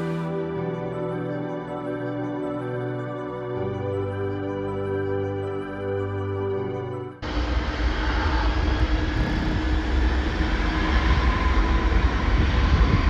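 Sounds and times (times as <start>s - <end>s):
jet plane taking off: 7.2s - 13.0s.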